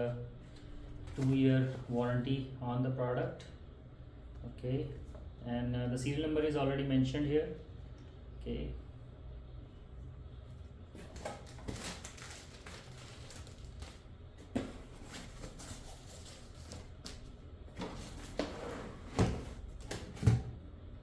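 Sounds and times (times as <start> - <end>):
cardboard packaging rustling: 11.0 - 18.5.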